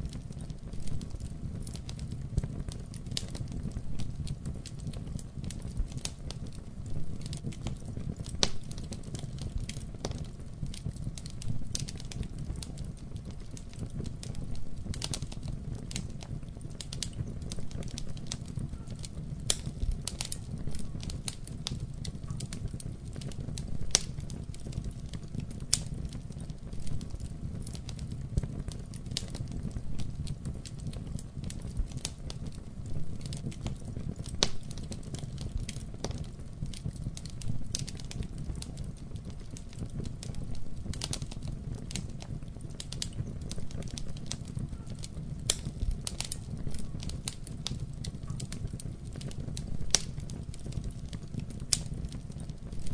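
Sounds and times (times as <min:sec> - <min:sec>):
fire crackling and popping: 0:00.0 - 0:52.9
low rumble of flames: 0:00.0 - 0:52.9.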